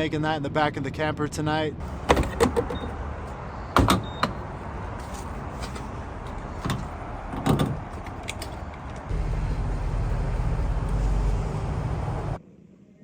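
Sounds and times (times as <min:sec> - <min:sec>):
sharp knocks and clunks: 0:02.0 - 0:03.0, 0:03.7 - 0:04.5, 0:06.6 - 0:08.2
steady low rumble: 0:04.4 - 0:12.4.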